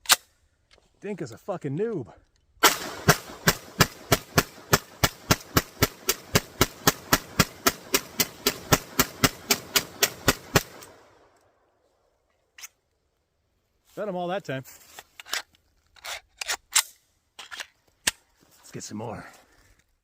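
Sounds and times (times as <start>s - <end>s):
rapid pistol fire: 2.6s - 11.2s.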